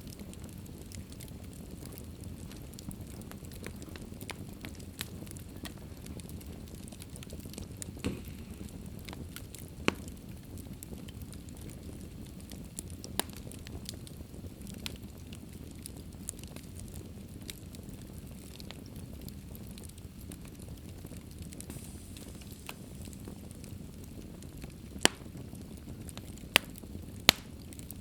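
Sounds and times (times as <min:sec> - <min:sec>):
fire crackling: 0:00.0 - 0:28.0.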